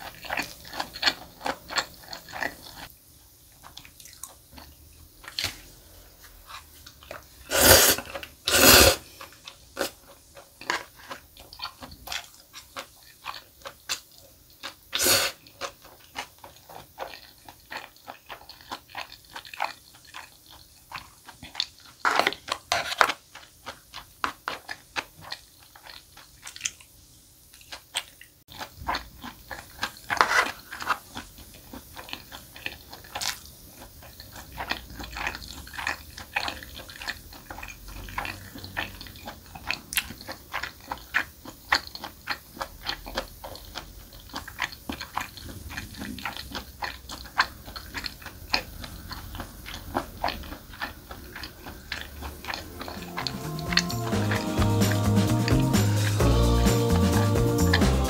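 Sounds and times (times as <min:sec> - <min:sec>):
chewing and wet mouth sounds: 0:00.0 - 0:02.9, 0:03.5 - 0:58.0.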